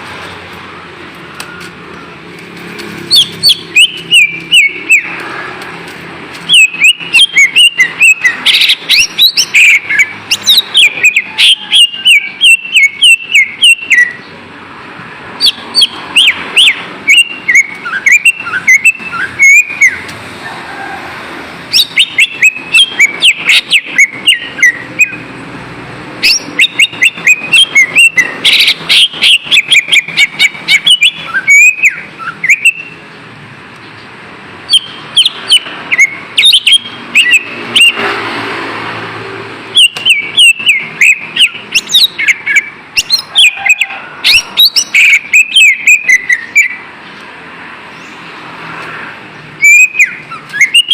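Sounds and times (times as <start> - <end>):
bird singing whistles and clicks: 3.1 - 5.3, 6.3 - 14.3, 15.4 - 20.2, 26.2 - 33.0, 34.7 - 38.0, 39.8 - 47.3, 49.6 - 50.9.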